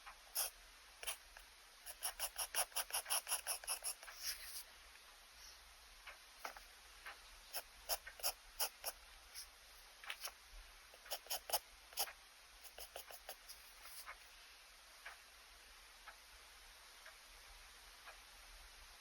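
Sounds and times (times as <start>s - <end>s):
pen scratching on paper: 0.4s - 4.7s, 7.5s - 9.5s, 10.1s - 10.4s, 11.0s - 14.2s.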